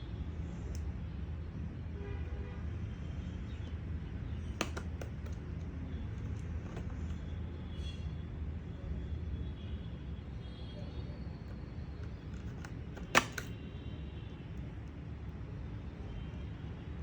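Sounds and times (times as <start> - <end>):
street traffic rumble: 0.0 - 17.0
sharp clicks: 4.5 - 7.2, 12.0 - 13.6.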